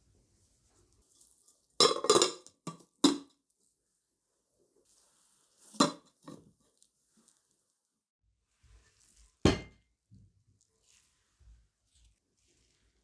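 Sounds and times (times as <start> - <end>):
dishes and utensils clinking: 1.8 - 3.3.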